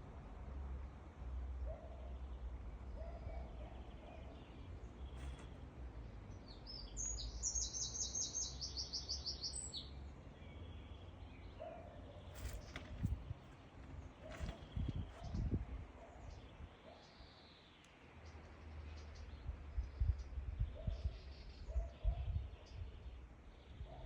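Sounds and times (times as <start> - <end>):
songbird trilling: 6.6 - 9.9.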